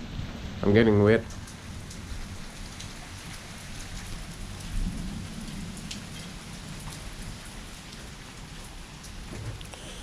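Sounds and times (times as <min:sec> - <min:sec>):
rain falling: 0:00.0 - 0:10.0
raindrops ticking: 0:01.2 - 0:10.0
thunder rumbling: 0:04.1 - 0:08.2.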